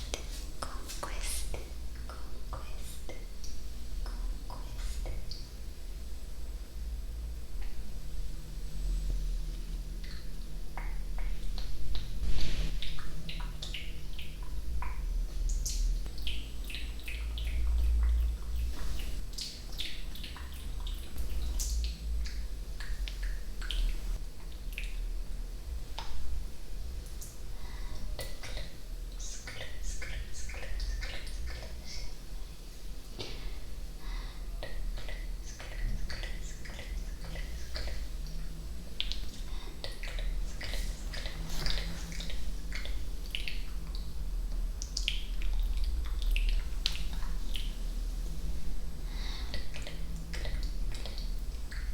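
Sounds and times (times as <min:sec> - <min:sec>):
steady low hum: 0:00.0 - 0:51.9
wet mouth clicks and pops: 0:39.0 - 0:47.7.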